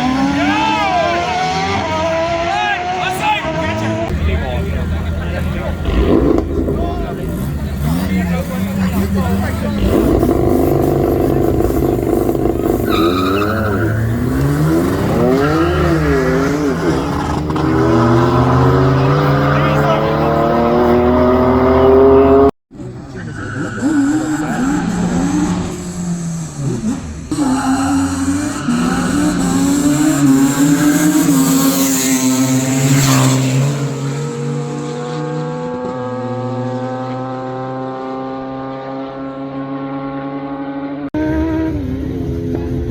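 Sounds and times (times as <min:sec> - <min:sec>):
car engine revving: 0:00.0 - 0:42.9
tyres squealing: 0:07.4 - 0:17.8.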